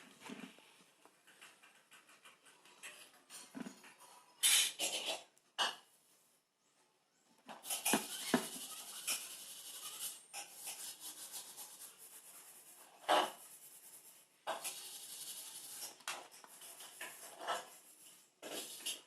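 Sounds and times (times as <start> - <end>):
rubbing and scraping: 7.5 - 19.0.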